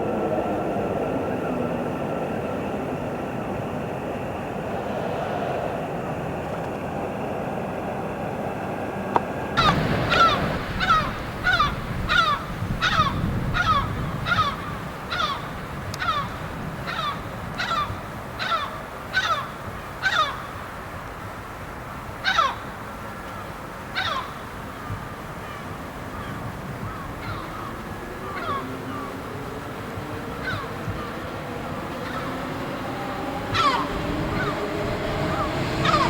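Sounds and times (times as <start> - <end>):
faint whine: 0.0 - 22.1
train rumble: 0.0 - 36.0
crow cawing: 9.6 - 20.6, 22.2 - 22.7, 24.0 - 24.4, 25.4 - 29.2, 30.4 - 31.1, 32.0 - 32.4, 33.5 - 34.5, 35.3 - 36.0.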